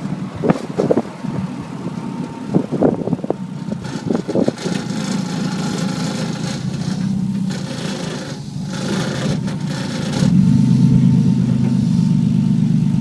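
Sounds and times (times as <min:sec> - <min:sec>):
car engine droning: 0:00.0 - 0:13.0.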